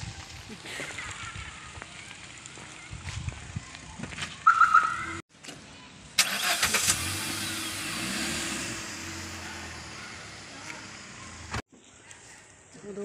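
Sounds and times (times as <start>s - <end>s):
car engine starting and idling: 6.2s - 11.6s.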